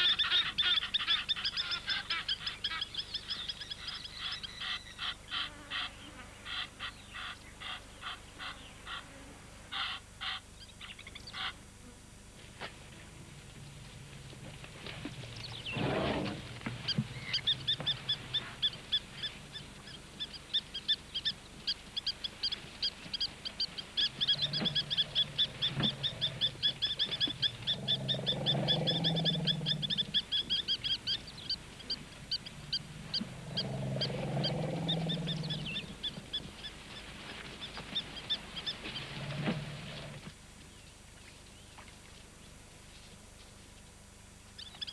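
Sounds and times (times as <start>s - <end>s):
plover alarm calls: 0.0s - 9.1s, 9.7s - 11.7s, 14.3s - 40.3s
deep rumbles: 24.1s - 36.2s.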